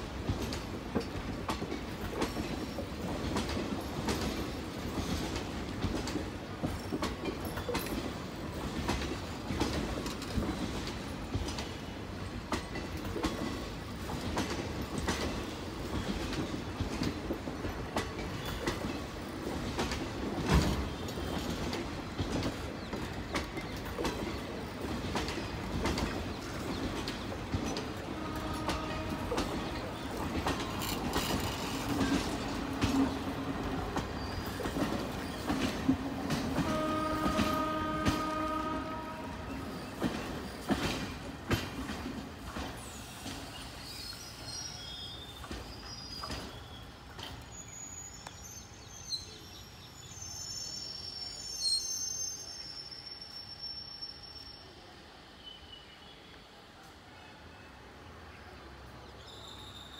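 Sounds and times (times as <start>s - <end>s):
train wheels clattering over rail joints: 0.0s - 44.0s, 45.3s - 47.5s.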